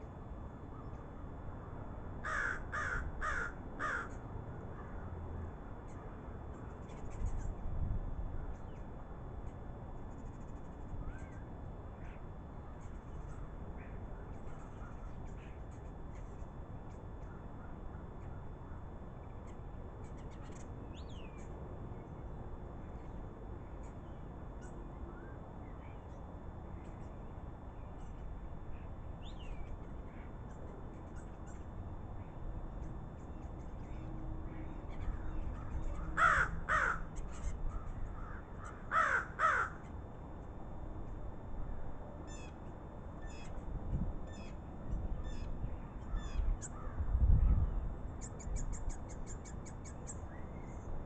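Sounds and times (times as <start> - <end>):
crows cawing: 0.7 - 5.3, 12.0 - 15.2, 34.9 - 40.0, 46.0 - 47.1
faint bird chirps and whistles: 10.2 - 12.2, 27.8 - 30.3, 43.2 - 43.6, 45.2 - 46.8, 47.4 - 50.9.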